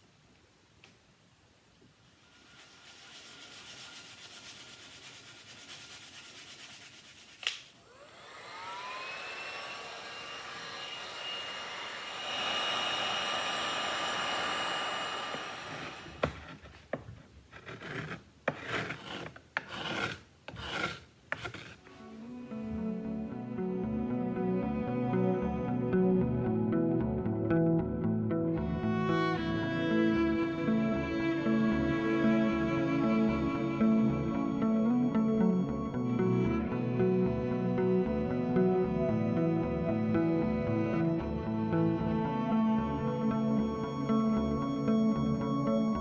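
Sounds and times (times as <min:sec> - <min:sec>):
hand sanding strokes: 0:02.2 - 0:16.6, 0:17.6 - 0:21.8
small electric tool whining: 0:07.8 - 0:16.7, 0:29.0 - 0:46.0.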